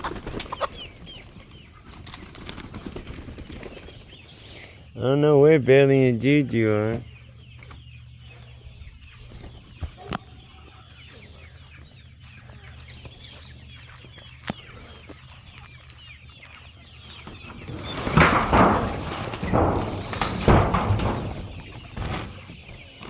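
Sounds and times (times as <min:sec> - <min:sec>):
young chickens clucking and peeping: 0:00.0 - 0:23.0
sharp knocks: 0:17.5 - 0:22.5.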